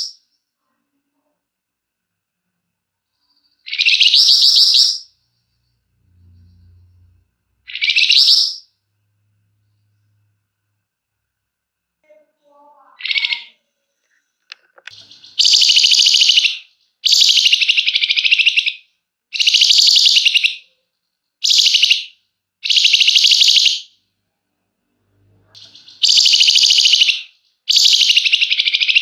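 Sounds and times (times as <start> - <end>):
soft bird notes and call: 3.1 - 8.8, 14.9 - 20.8, 21.4 - 24.0, 25.5 - 29.0
bird singing rattling trills: 14.9 - 18.8, 19.4 - 20.6, 21.4 - 23.8, 25.6 - 29.0.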